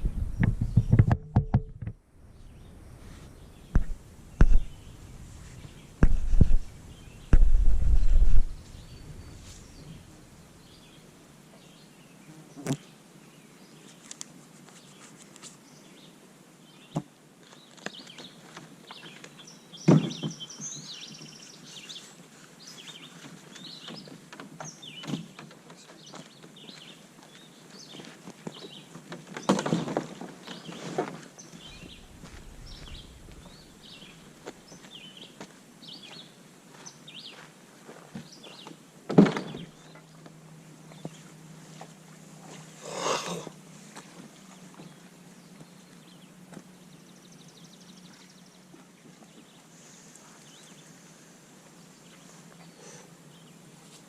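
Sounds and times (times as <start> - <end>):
small birds chirping: 0.0 - 1.1, 2.3 - 29.6, 30.4 - 37.5, 38.2 - 54.0
sharp knocks and thunks: 0.0 - 2.0, 3.7 - 4.8, 6.0 - 8.7.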